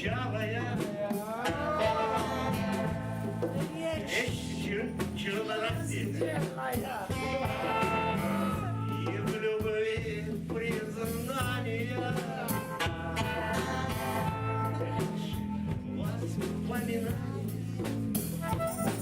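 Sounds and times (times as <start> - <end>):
bass notes: 0.0 - 19.0
drums: 0.0 - 19.0
wavering lead melody: 1.5 - 9.3.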